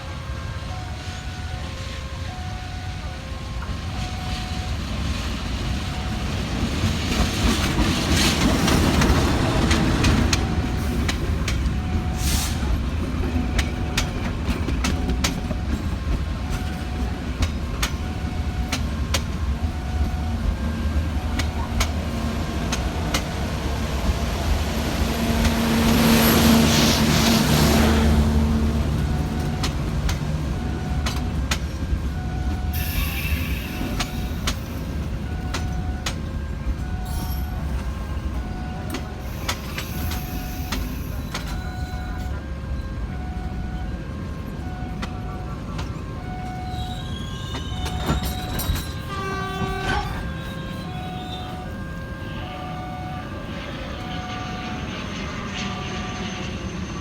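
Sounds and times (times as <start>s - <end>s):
low train drone: 0.0s - 57.0s
train wheels clacking over rail joints: 6.3s - 20.3s.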